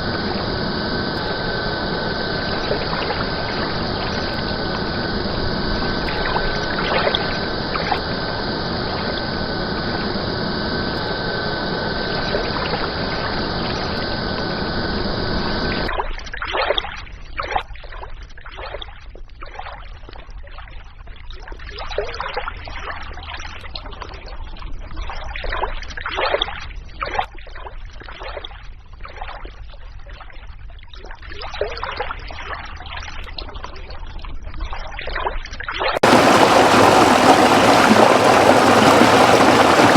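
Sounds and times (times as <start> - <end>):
steady rushing noise: 0.0 - 15.9, 36.0 - 39.9
stream trickling and splashing: 0.0 - 24.2, 31.0 - 39.9.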